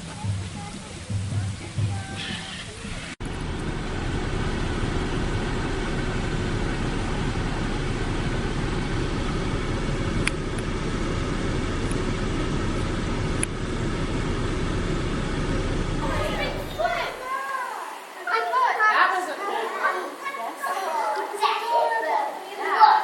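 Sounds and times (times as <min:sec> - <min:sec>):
vehicle engine rumble: 0:00.0 - 0:17.2.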